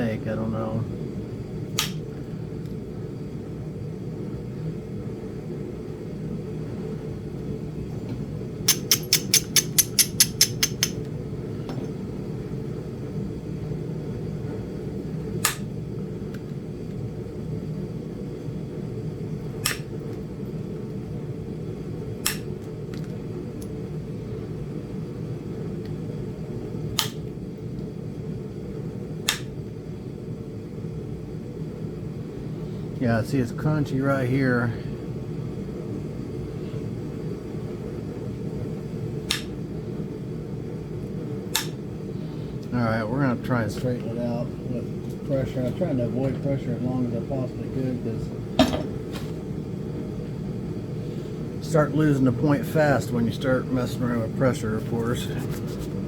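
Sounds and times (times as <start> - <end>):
steady low hum: 0.0 - 56.0
tool clicking on stone: 8.7 - 11.0.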